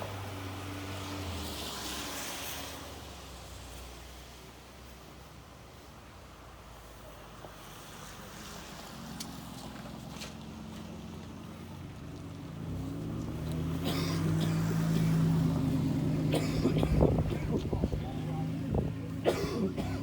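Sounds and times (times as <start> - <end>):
vehicle engine approaching: 7.6 - 19.2.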